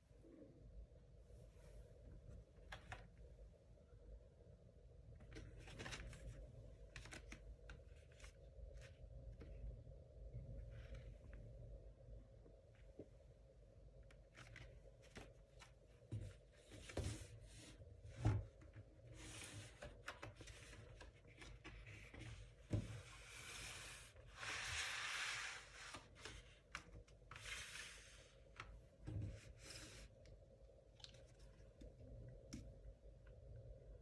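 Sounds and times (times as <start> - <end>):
record sleeve rustling and sliding: 19.2 - 28.8.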